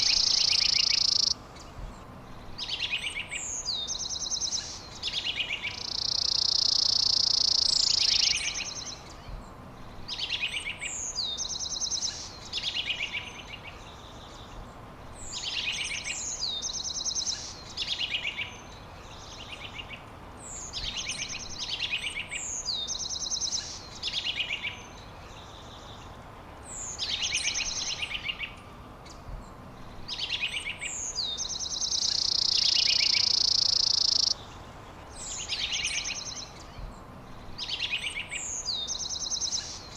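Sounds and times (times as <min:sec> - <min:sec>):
bird trilling: 0:00.0 - 0:01.4, 0:05.8 - 0:08.7, 0:31.3 - 0:34.4
songbird singing: 0:00.0 - 0:39.9.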